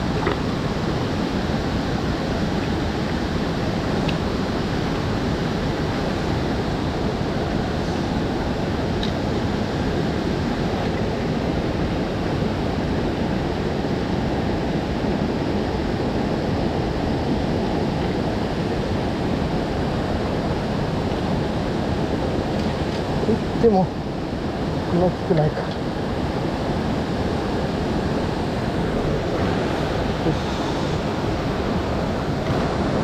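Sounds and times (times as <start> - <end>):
stream water rushing: 0.0 - 33.0.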